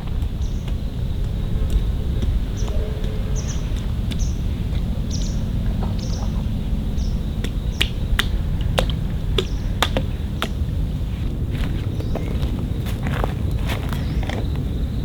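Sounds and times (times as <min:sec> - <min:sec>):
wind rumble: 0:00.0 - 0:15.0
small bird chirping: 0:00.2 - 0:14.8
sharp clicks and taps: 0:07.4 - 0:10.6.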